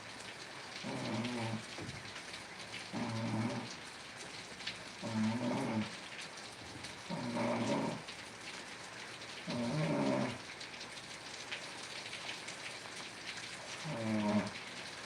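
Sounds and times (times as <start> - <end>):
steady rain falling: 0.0 - 15.0
low animal call: 13.8 - 14.6.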